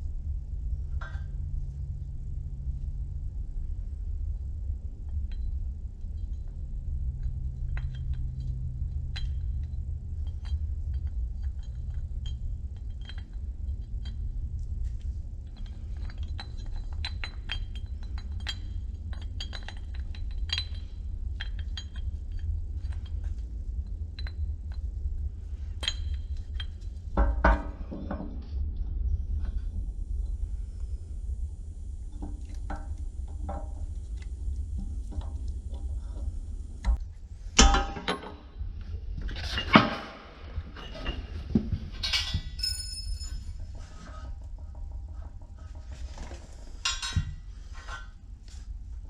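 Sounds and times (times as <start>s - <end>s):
steady low hum: 0.0s - 49.0s
metal rattle: 37.4s - 48.2s
metal parts clinking: 40.8s - 43.7s.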